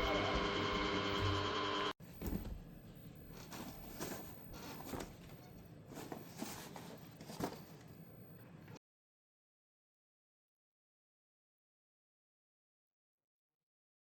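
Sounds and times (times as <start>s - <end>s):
faint rustling and handling: 2.0s - 8.0s.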